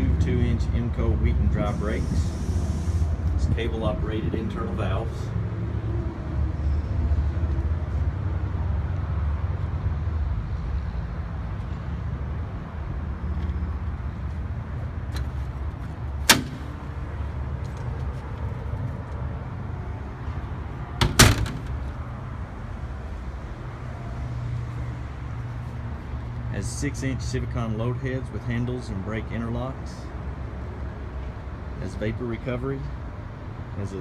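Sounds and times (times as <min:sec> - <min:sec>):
diesel truck engine idling: 0:12.4 - 0:27.5
sharp metallic click: 0:16.3 - 0:16.9.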